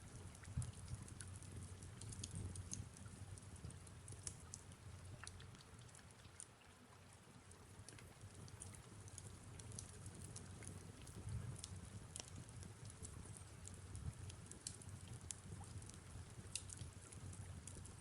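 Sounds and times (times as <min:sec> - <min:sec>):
soft rain falling: 0:00.0 - 0:18.0
wood fire crackling: 0:07.9 - 0:18.0.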